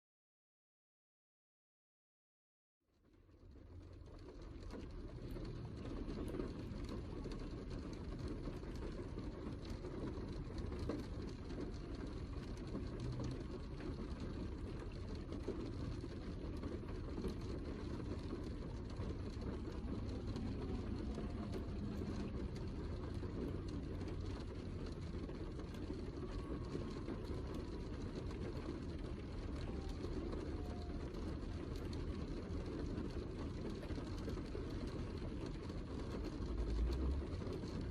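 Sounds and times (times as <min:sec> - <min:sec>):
heavy rain falling: 0:03.3 - 0:37.9.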